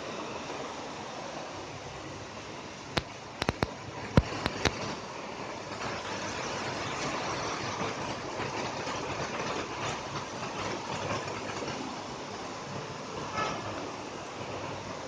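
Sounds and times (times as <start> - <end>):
steady rain falling: 0.0 - 15.0
sharp taps: 3.0 - 4.8.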